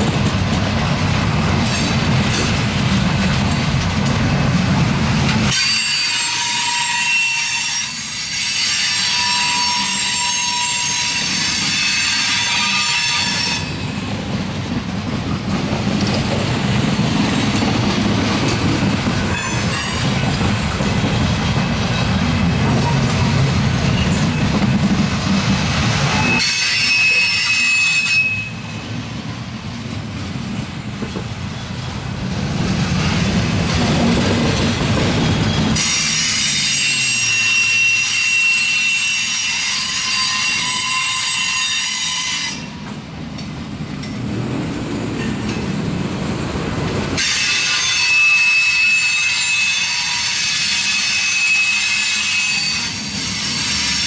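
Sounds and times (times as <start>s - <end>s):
train wheels rumbling on track: 0.0s - 54.0s
high-pitched wheel squeal: 5.5s - 13.9s, 26.1s - 28.8s, 35.5s - 42.7s, 47.2s - 54.0s.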